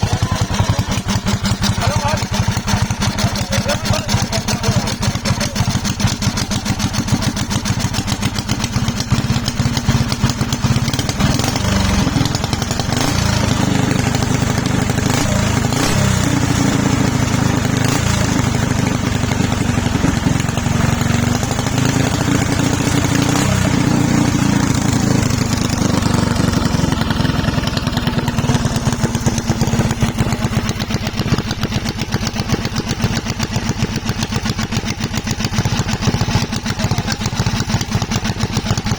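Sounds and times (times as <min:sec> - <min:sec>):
small engine running: 0:00.0 - 0:08.3, 0:09.8 - 0:38.9.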